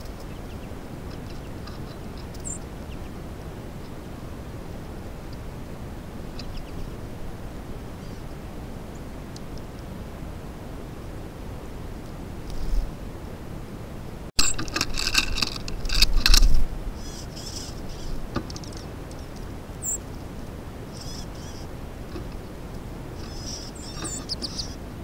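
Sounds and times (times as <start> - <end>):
songbirds calling: 0.0 - 9.9, 14.4 - 25.0
low rush of noise: 0.0 - 25.0
buzzy bird chatter: 17.0 - 20.1, 20.9 - 21.7, 23.2 - 24.8.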